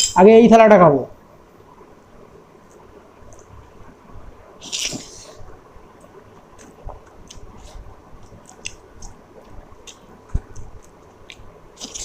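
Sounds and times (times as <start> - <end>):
wet chewing mouth sounds: 6.6 - 12.0.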